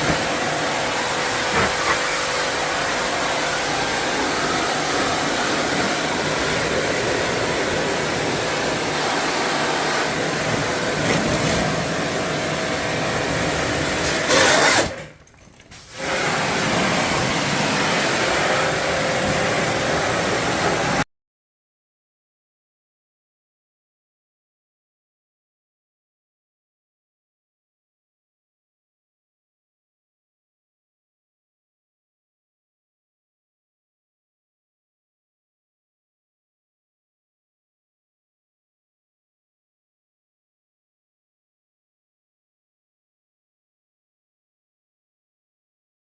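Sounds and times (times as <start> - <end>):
cleaning machine motor whirring: 0.0 - 15.0, 15.8 - 21.0.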